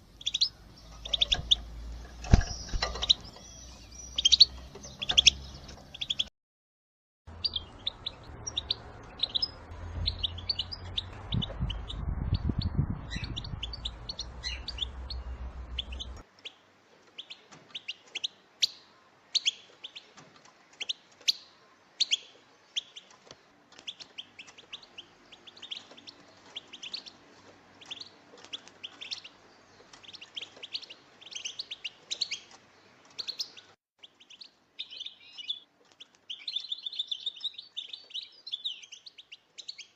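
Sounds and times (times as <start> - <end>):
goldfinches chirping: 0.0 - 6.3, 7.4 - 12.0
low rumble: 7.3 - 16.2.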